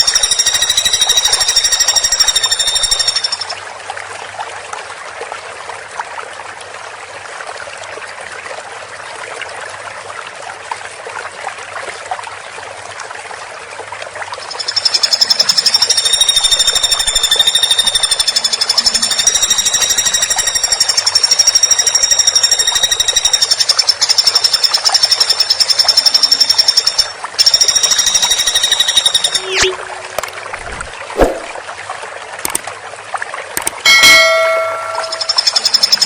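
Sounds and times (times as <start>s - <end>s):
woodpecker rattling call: 0.0s - 3.5s, 14.4s - 30.3s, 34.6s - 36.0s.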